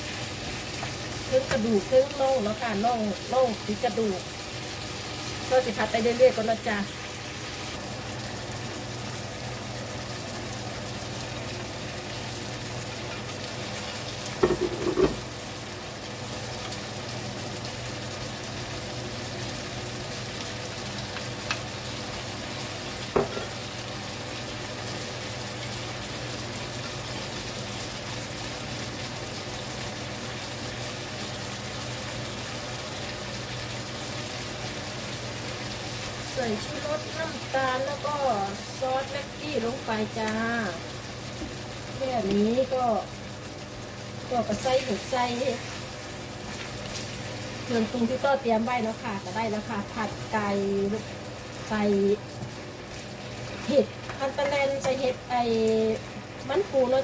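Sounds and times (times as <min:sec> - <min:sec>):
chicken sizzling in a pan: 0:00.0 - 0:57.0
utensil clattering against pan: 0:14.4 - 0:15.2.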